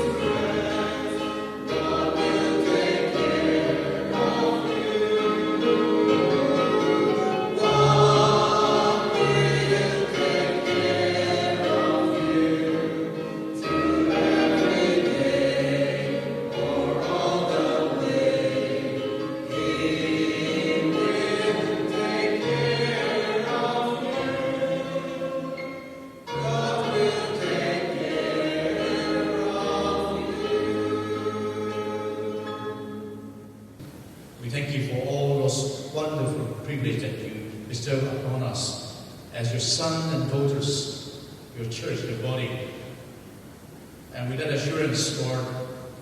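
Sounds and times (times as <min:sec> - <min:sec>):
group singing a hymn: 0:00.0 - 0:33.5
instrumental accompaniment: 0:00.0 - 0:34.4.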